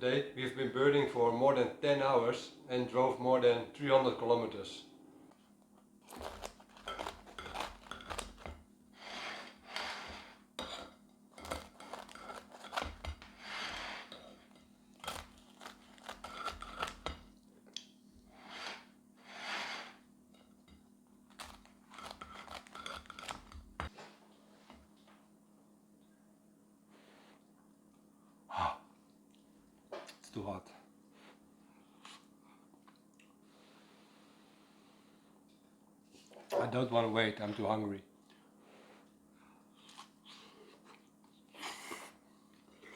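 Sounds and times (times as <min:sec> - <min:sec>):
steady low hum: 0:00.0 - 0:42.9
pizza tearing and scraping: 0:06.1 - 0:08.5, 0:11.4 - 0:13.2, 0:15.0 - 0:17.2, 0:21.3 - 0:23.6.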